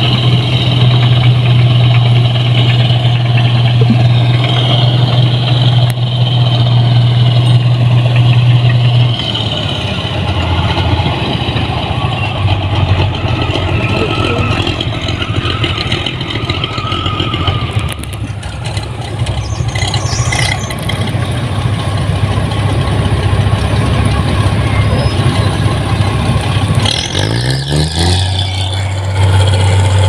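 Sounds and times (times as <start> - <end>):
combine harvester engine humming: 0.0 - 30.0.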